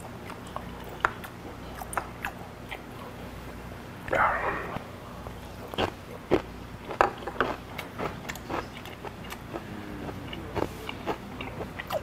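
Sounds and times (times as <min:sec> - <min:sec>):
person chewing with wet clicks: 0:00.0 - 0:03.2, 0:05.6 - 0:12.0.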